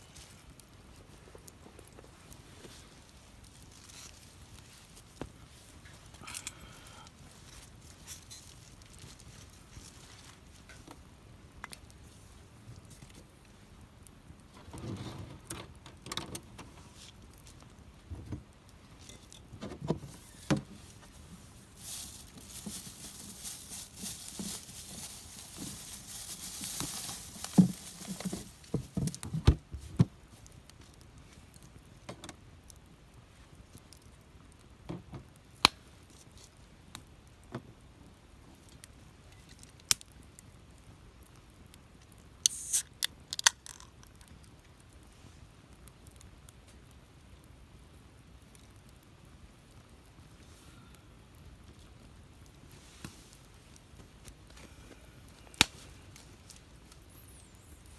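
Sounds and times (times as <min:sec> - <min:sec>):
fire hissing: 0:00.0 - 0:10.6, 0:20.0 - 0:29.0, 0:42.2 - 0:43.2, 0:50.1 - 0:57.9
campfire crackling and popping: 0:00.0 - 0:14.8, 0:15.4 - 0:57.9.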